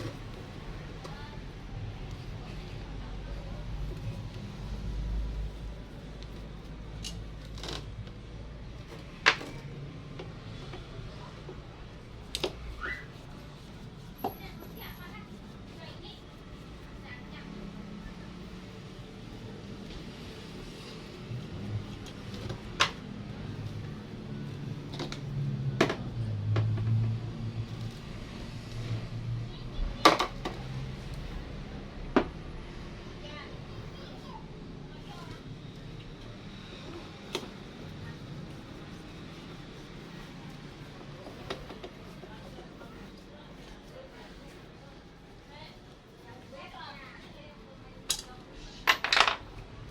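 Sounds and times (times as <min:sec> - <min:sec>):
tools and parts clicking: 0:48.1 - 0:49.5.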